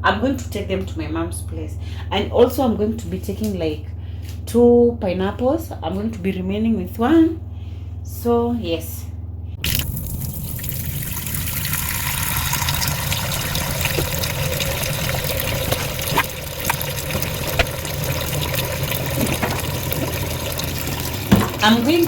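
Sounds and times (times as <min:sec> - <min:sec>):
water filling a container: 0:09.6 - 0:22.0.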